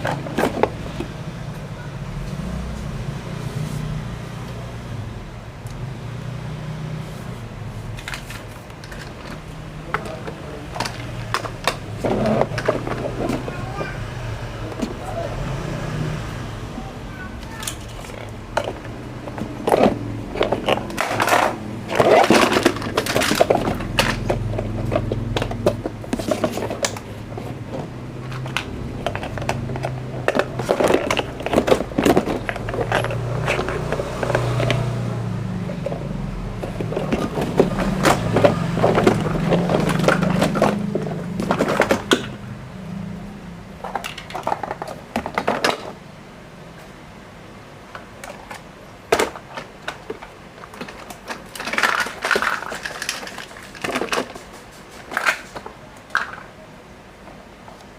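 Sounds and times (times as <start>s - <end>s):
plastic toys clattering: 0.0s - 1.2s, 7.9s - 15.3s, 17.1s - 42.5s, 43.8s - 46.0s, 47.9s - 56.6s.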